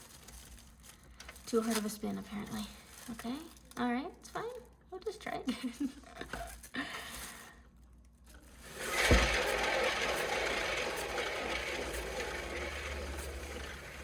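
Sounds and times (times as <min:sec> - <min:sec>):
rattling whir of turntable bearing: 0:08.6 - 0:14.0.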